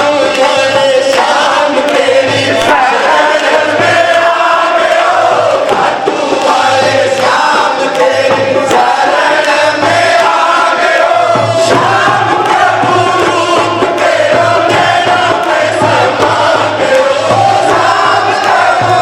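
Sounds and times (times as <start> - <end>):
crowd singing devotional song: 0.0 - 19.0
low drum beat: 11.2 - 19.0.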